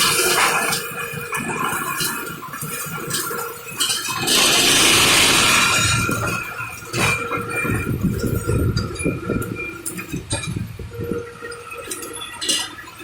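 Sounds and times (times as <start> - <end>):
machinery whining: 4.0 - 13.0
loud hiss: 4.2 - 6.2
machinery knocking: 4.2 - 8.1.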